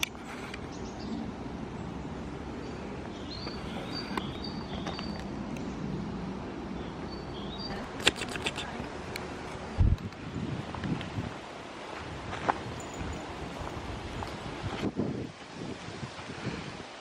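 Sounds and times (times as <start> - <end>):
sharp clicks: 7.9 - 9.3
wind rumble on microphone: 8.5 - 17.0.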